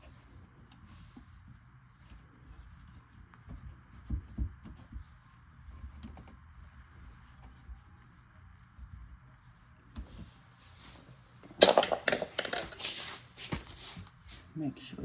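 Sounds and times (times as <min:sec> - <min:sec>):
garbage disposal knocks and clatter: 0:11.5 - 0:12.8.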